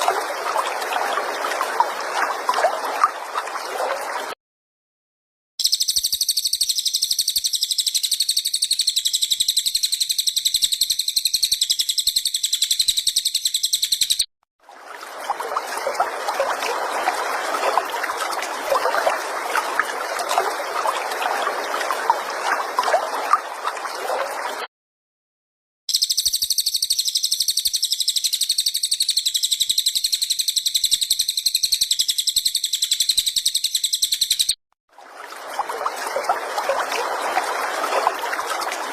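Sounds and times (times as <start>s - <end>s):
songbird high rapid trill: 5.6s - 14.3s, 25.9s - 34.6s.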